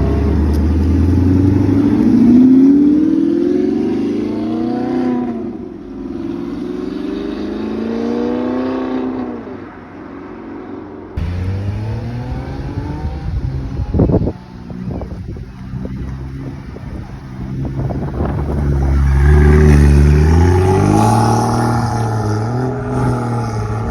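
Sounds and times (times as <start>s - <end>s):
car engine accelerating: 11.2s - 23.9s
deep engine rumbling at low revs: 11.2s - 23.9s.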